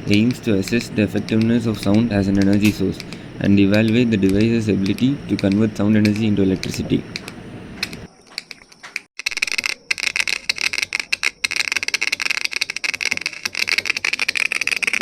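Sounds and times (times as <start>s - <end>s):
steady hiss: 0.0s - 8.1s
rapid clicking and crackling: 0.0s - 15.0s.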